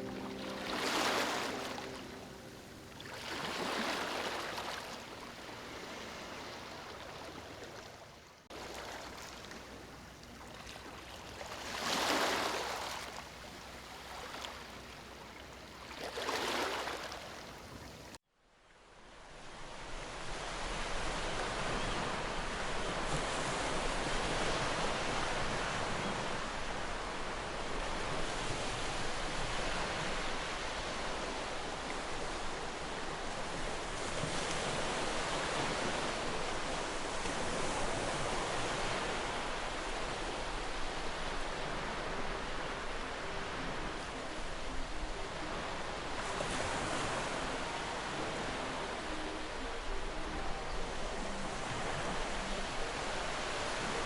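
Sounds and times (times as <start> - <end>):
steady surf: 0.0 - 7.6
sea waves washing in: 0.0 - 18.2, 19.4 - 54.0
wind: 0.0 - 54.0.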